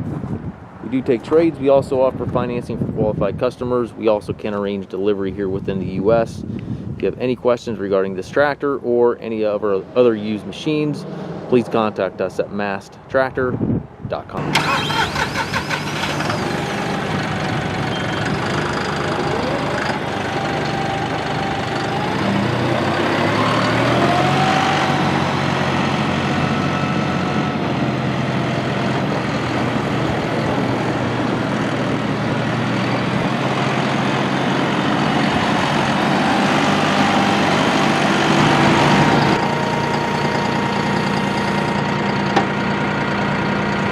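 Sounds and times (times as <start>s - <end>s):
tractor diesel engine running: 14.4s - 43.9s.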